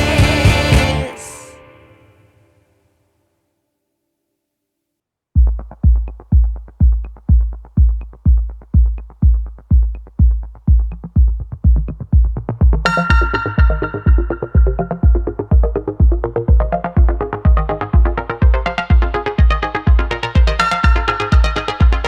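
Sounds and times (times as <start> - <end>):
heavy bass kick drum: 0.0 - 1.0, 5.4 - 22.0
synthesizer: 0.0 - 2.6, 5.6 - 22.0.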